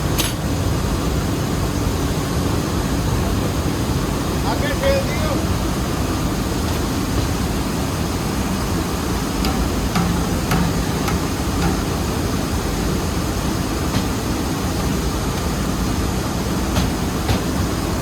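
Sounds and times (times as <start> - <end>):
mill machinery roaring: 5.5 - 18.0
sharp metallic knocks and clinks: 9.4 - 12.9.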